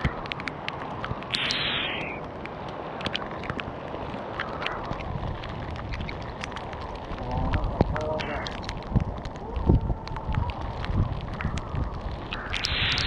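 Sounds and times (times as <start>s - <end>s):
hail and rain striking surfaces: 0.0s - 13.0s
wind rumble on microphone: 0.0s - 13.0s
short hiss: 1.3s - 2.2s.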